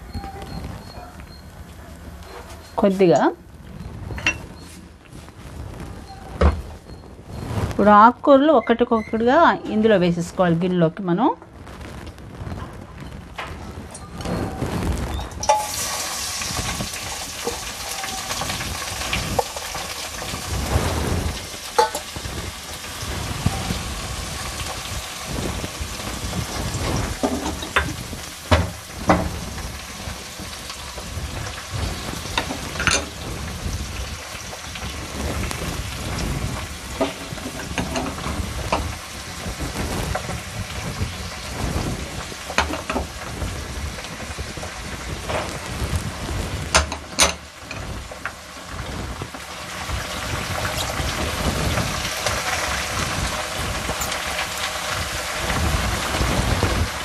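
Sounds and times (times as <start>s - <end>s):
bowls knocking and clinking: 4.2s - 4.5s, 32.4s - 33.2s
leafy greens sizzling in oil: 11.6s - 57.0s.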